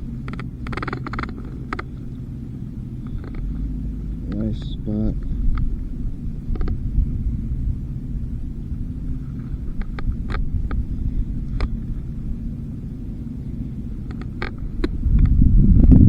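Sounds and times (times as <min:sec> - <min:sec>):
camera handling rumble: 0:00.0 - 0:07.6, 0:08.4 - 0:12.4, 0:13.7 - 0:16.0
fishing tackle clicks: 0:00.2 - 0:02.2, 0:03.0 - 0:03.7, 0:14.0 - 0:15.3.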